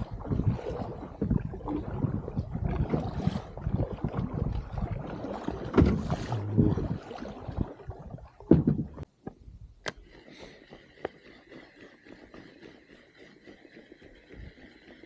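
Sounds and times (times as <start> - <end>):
water splashing: 0.0 - 9.1, 10.0 - 15.0
wind rumbling: 5.8 - 9.8.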